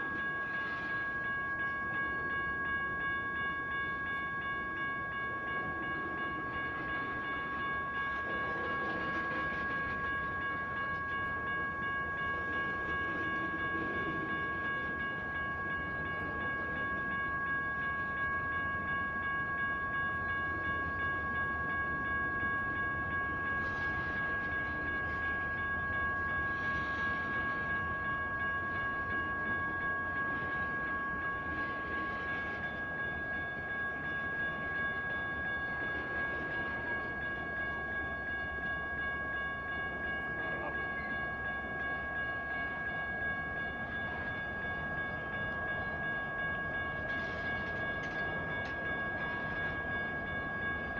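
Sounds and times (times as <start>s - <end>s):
electronic crossing bells ringing: 0.0s - 50.9s
freight train rumble: 0.0s - 50.9s.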